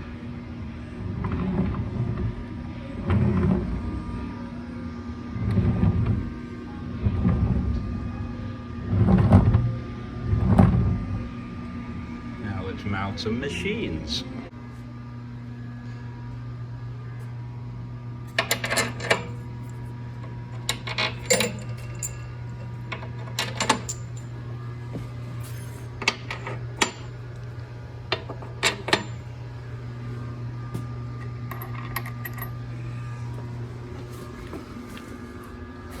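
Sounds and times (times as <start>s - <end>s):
steady low hum: 0.0s - 36.0s
metal tools clinking: 18.3s - 24.4s, 25.4s - 29.3s.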